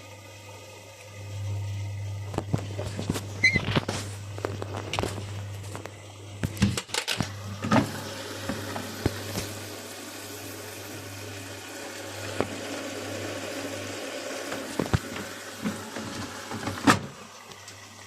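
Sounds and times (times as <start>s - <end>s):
washing machine humming: 0.0s - 18.0s
clunks and clicks: 2.3s - 9.5s.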